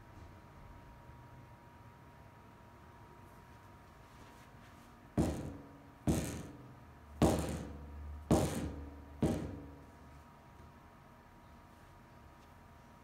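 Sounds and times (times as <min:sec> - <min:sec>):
rattling inside club head: 0:05.2 - 0:09.9.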